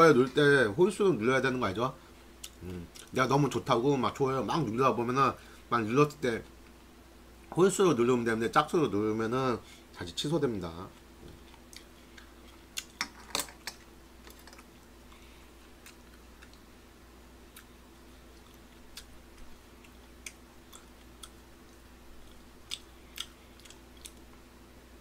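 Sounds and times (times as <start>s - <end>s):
faint steady hum: 0.0s - 25.0s
wet mouth clicks chewing: 18.3s - 21.4s, 22.2s - 24.3s.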